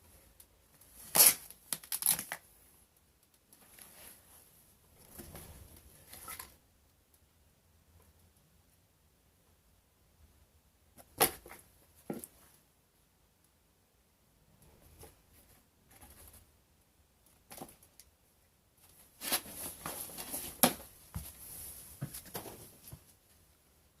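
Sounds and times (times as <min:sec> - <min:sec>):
rustling: 0:18.8 - 0:23.6.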